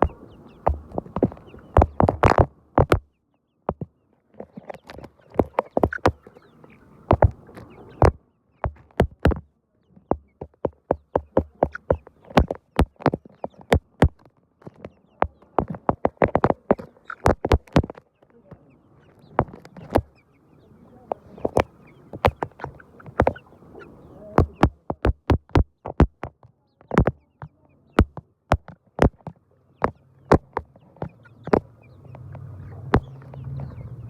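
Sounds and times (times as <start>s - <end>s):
chickens clucking: 0.0s - 3.0s, 3.7s - 34.0s
sharp taps and clicks: 0.0s - 3.1s, 3.7s - 3.9s, 4.6s - 6.3s, 7.1s - 9.4s, 10.1s - 18.0s, 21.1s - 23.4s, 24.4s - 33.8s.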